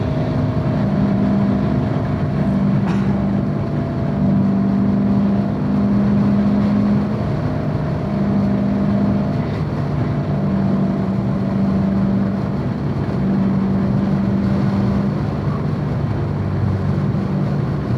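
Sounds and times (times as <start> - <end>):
car engine running steadily: 0.0 - 17.9.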